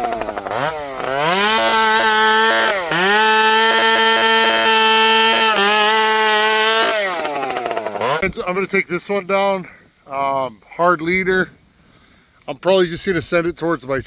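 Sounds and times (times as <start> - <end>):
chainsaw revving: 0.0 - 8.3.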